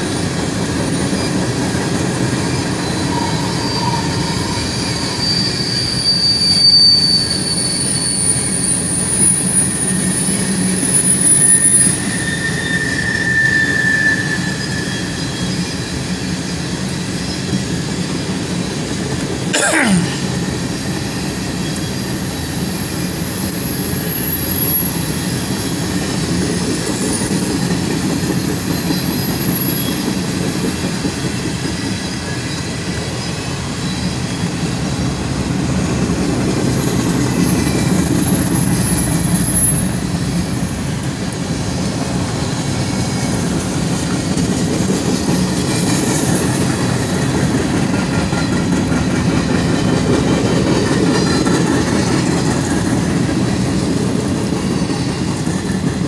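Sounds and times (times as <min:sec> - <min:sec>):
train wheels rumbling on rail: 0:22.3 - 0:56.0.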